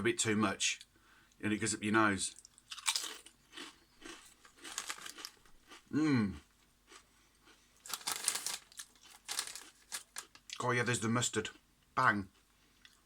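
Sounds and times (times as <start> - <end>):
crisps crunching when chewed: 2.3 - 10.7.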